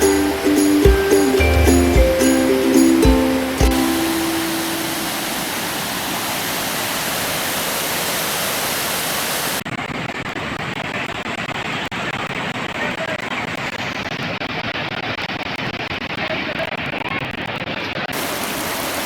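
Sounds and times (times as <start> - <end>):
waterfall rushing: 0.0 - 9.6, 18.2 - 19.0.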